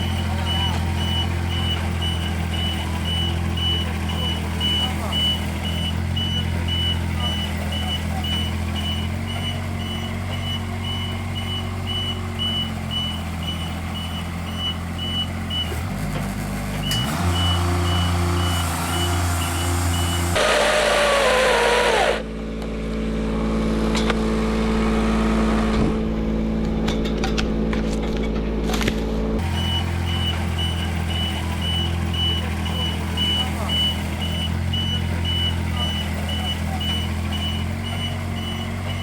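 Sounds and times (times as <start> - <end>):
high-pitched alarm beeping: 0.0 - 15.8, 16.9 - 20.8, 29.4 - 39.0
diesel engine running: 0.0 - 39.0.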